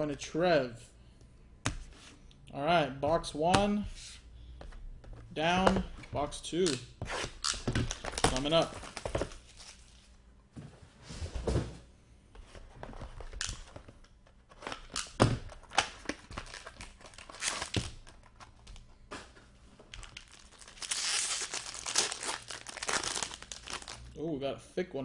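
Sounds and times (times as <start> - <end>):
wrapper crinkling and tearing: 16.2 - 18.3, 20.0 - 24.1.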